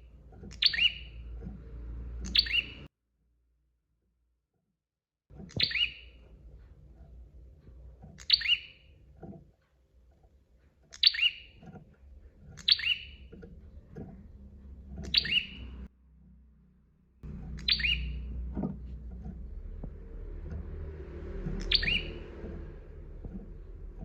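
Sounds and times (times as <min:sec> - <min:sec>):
bird chirping: 0:00.0 - 0:02.9, 0:05.4 - 0:06.3, 0:08.1 - 0:09.0, 0:10.9 - 0:11.8, 0:12.4 - 0:14.1, 0:14.8 - 0:15.9, 0:17.2 - 0:24.0
low background hum: 0:05.4 - 0:24.0.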